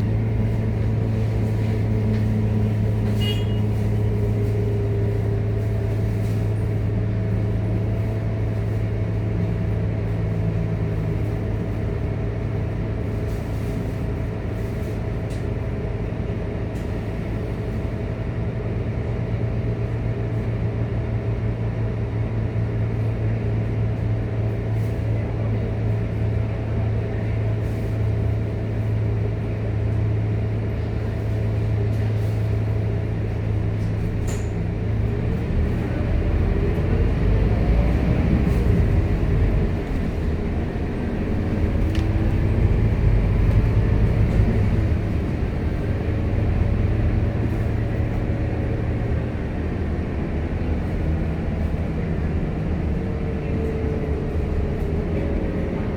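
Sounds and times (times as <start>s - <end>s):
bus engine accelerating: 0.0s - 55.9s.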